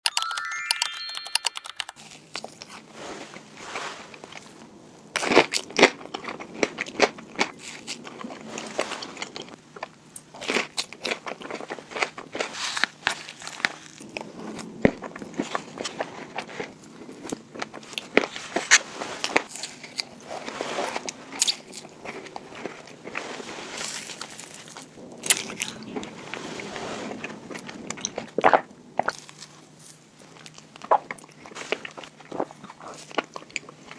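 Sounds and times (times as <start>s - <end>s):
crunching and chewing sweets: 2.0s - 33.9s.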